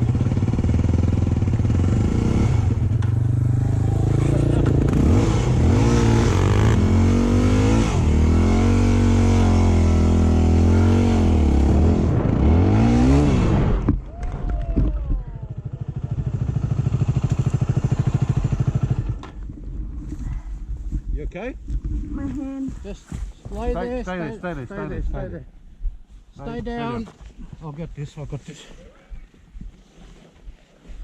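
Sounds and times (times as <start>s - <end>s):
motorcycle engine revving: 0.0s - 13.9s, 15.4s - 20.7s.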